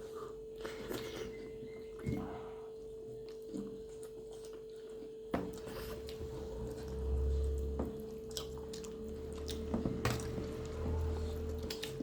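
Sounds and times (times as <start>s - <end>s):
faint hum: 0.0s - 12.0s
wet chewing and lip-smacking: 2.8s - 12.0s.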